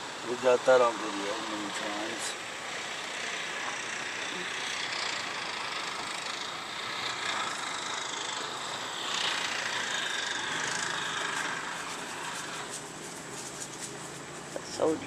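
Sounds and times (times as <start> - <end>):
car engine from inside cabin: 8.2 - 15.0.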